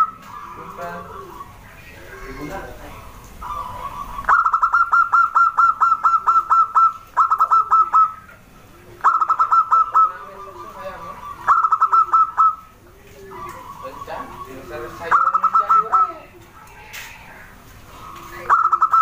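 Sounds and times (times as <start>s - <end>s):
doves calling staccato notes: 0.0s - 19.0s
soft low dove notes: 0.0s - 19.0s.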